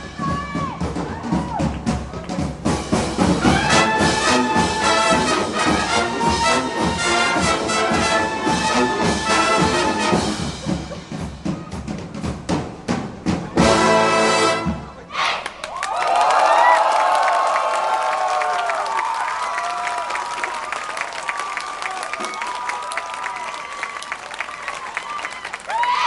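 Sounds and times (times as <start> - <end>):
marching drums: 0.0 - 15.0
brass playing: 2.9 - 10.8, 13.6 - 15.0.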